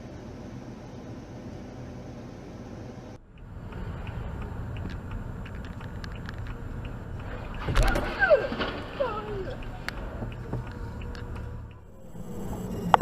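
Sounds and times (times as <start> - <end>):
car engine and road noise: 0.0 - 13.0
light ticks: 3.2 - 13.0.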